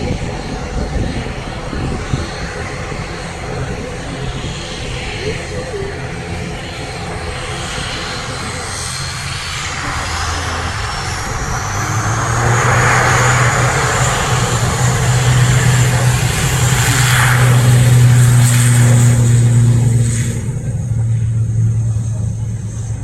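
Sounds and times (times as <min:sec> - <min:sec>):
jet engines with turbine whine: 0:00.0 - 0:23.0
steady low hum: 0:00.0 - 0:23.0.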